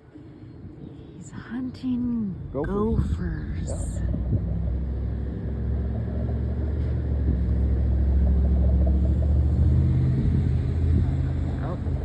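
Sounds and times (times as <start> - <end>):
car engine running: 3.6 - 12.0.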